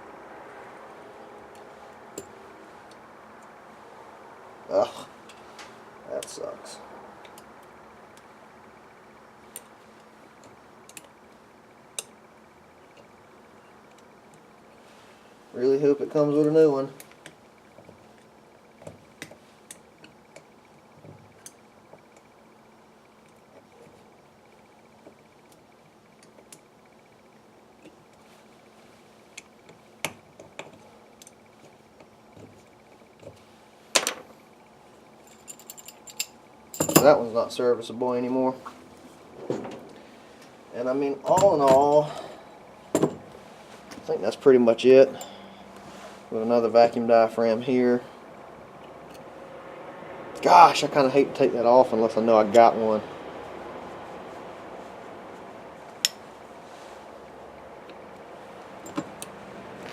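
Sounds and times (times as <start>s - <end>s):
small metal parts clicking: 35.2s - 37.1s.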